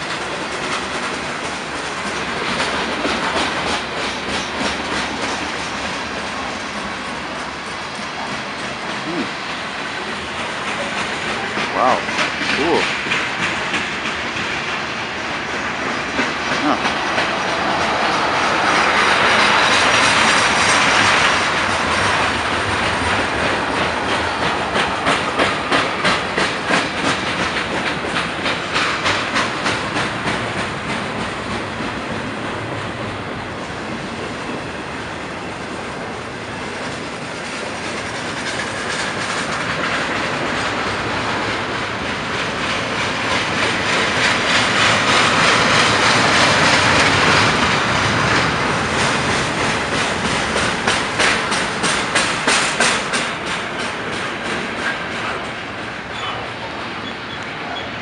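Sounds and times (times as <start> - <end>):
train wheels clicking over rail joints: 0.0 - 58.0.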